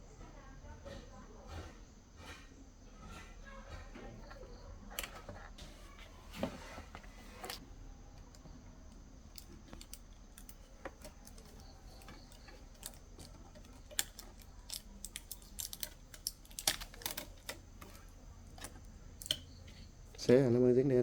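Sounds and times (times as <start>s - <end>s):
small clicks and taps: 3.7s - 20.4s.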